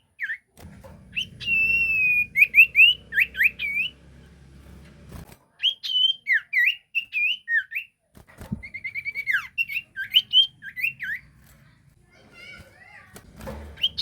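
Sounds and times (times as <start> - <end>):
songbird whistling: 1.1 - 4.0, 5.6 - 7.9, 8.6 - 11.2.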